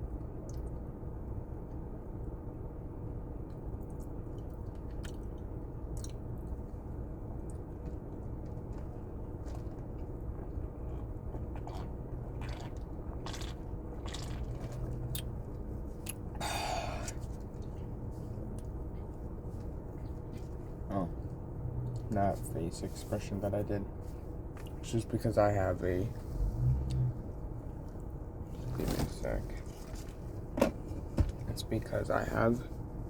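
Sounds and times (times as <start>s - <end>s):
low background hum: 0.0s - 33.0s
person chewing food: 3.5s - 20.8s.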